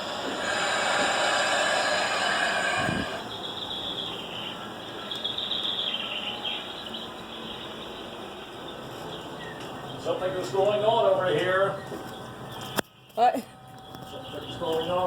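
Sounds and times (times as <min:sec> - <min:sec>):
loud rushing noise: 0:00.0 - 0:03.3
birds chirping: 0:00.0 - 0:15.0.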